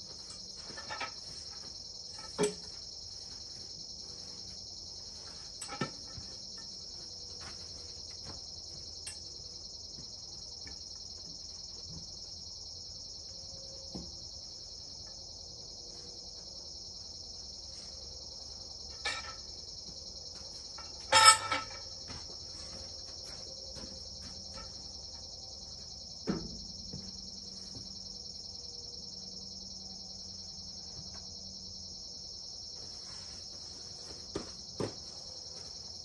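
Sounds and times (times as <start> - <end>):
crickets chirping: 0.0 - 36.0
ringing metal clank: 18.9 - 19.5, 20.8 - 22.0.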